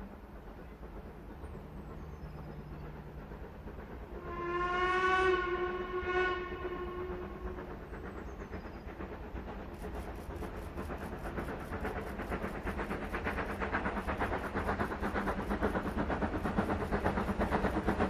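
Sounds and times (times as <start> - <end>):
steam locomotive whistle: 4.2 - 7.4.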